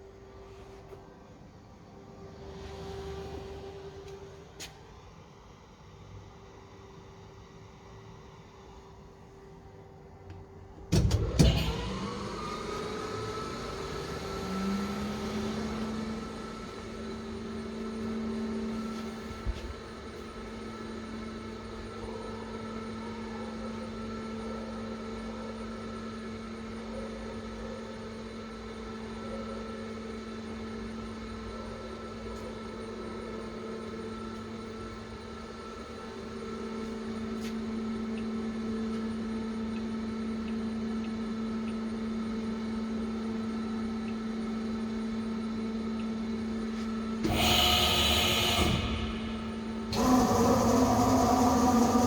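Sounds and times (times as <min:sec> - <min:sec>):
machinery humming: 0:11.0 - 0:21.8, 0:32.0 - 0:52.0.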